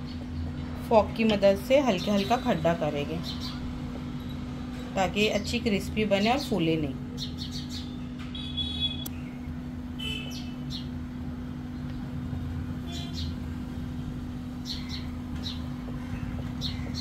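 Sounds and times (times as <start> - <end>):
birds chirping: 0.0 - 4.4, 6.2 - 11.0, 12.9 - 17.0.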